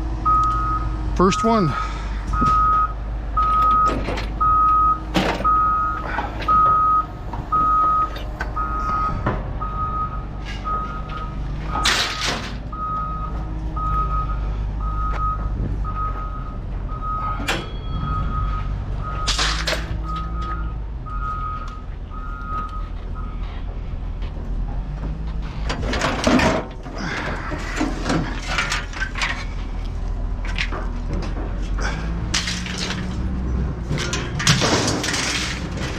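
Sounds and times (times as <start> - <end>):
engine running: 0.0 - 35.9
reversing alarm beeping: 0.2 - 23.5
metal clanks: 19.2 - 20.5, 30.4 - 35.9.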